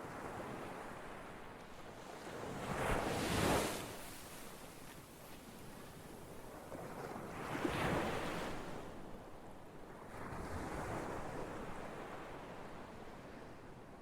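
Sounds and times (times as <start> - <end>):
ocean waves breaking on shore: 0.0 - 8.9.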